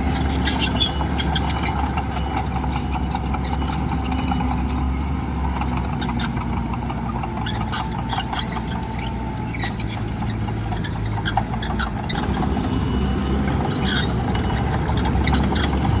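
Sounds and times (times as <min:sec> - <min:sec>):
diesel machine engine running: 0:00.0 - 0:16.0.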